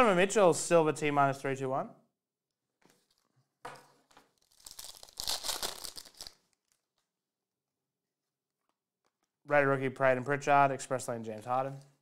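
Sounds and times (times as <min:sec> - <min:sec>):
wrapper tearing and crinkling: 0:04.2 - 0:07.0.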